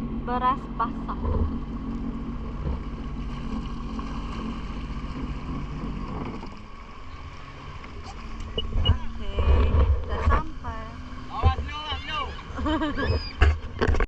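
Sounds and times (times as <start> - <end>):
boat engine running: 0.0 - 14.0
wind on microphone: 8.0 - 11.7.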